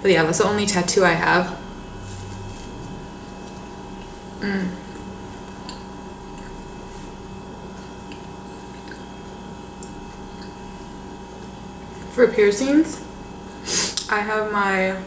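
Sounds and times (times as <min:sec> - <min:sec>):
steady electrical hum: 0:00.0 - 0:15.0
wet mouth chewing clicks: 0:07.7 - 0:10.6.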